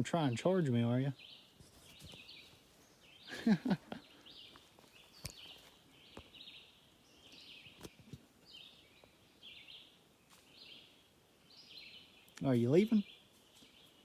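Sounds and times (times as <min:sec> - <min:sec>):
light clicks and rustles: 0:01.6 - 0:02.9, 0:04.5 - 0:06.3.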